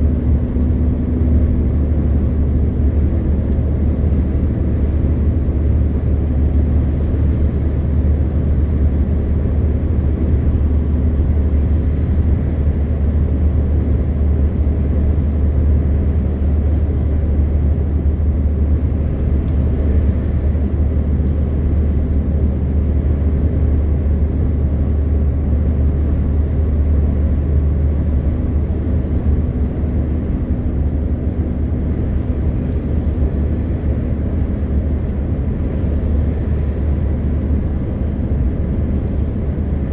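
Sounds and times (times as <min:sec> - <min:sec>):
road and tyre noise: 0:00.0 - 0:39.9
truck engine drone: 0:00.0 - 0:39.9.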